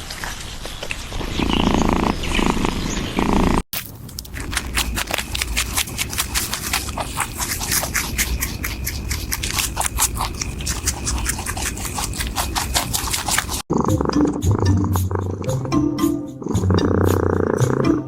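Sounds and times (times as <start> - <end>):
music: 13.8 - 18.0.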